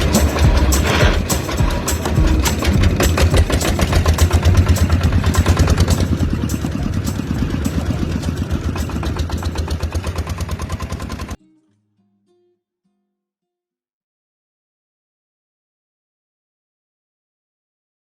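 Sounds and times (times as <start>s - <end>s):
miniature engine clattering: 0.0s - 11.4s.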